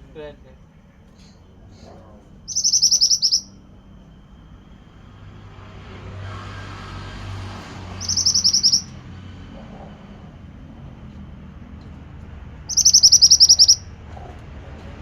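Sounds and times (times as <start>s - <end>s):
bird song rapid trills: 2.4s - 5.5s, 7.8s - 9.2s, 12.6s - 14.0s.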